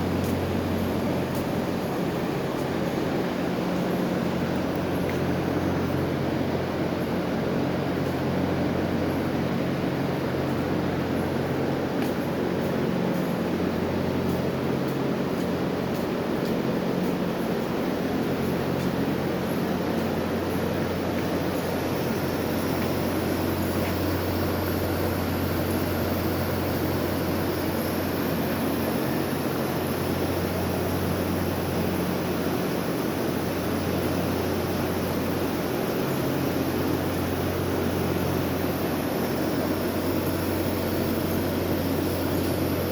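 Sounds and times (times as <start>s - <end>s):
industrial exhaust fan running: 0.0s - 42.9s.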